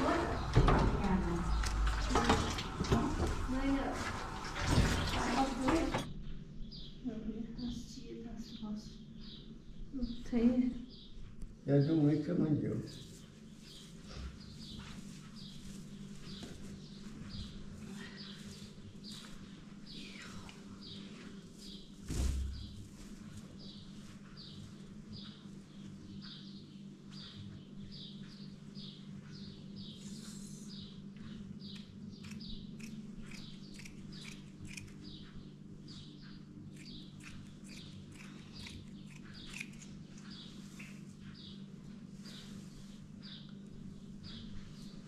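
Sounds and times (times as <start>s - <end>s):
steady low hum: 0.0s - 45.0s
small bird chirping: 26.2s - 42.6s.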